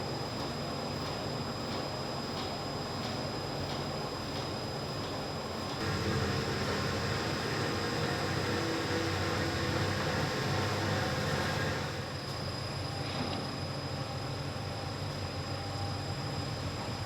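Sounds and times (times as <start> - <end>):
factory machinery hum: 0.0 - 17.0
high steady whine: 5.8 - 12.8.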